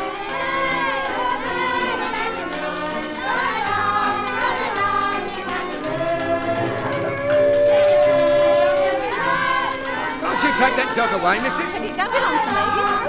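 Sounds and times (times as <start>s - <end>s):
group of voices singing: 0.0s - 13.0s
street organ tune: 0.9s - 13.0s.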